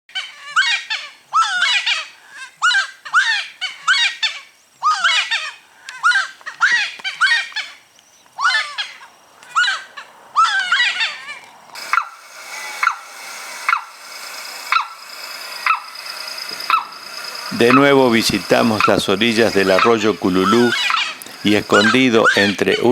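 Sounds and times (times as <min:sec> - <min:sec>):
faint background noise: 0:00.1 - 0:11.9
birds calling gliding notes: 0:00.5 - 0:22.9.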